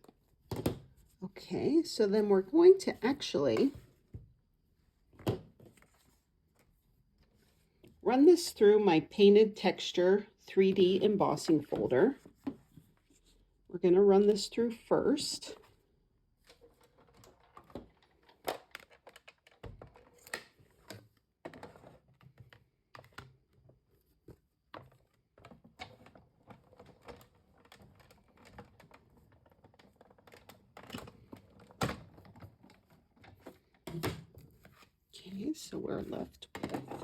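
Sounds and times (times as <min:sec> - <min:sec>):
plastic folder handled: 0:04.9 - 0:08.0, 0:16.4 - 0:35.1.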